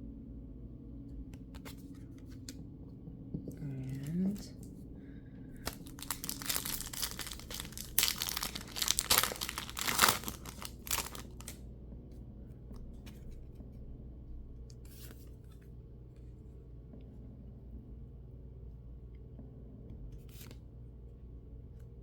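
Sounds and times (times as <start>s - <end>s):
wrapper tearing and crinkling: 5.6s - 11.6s.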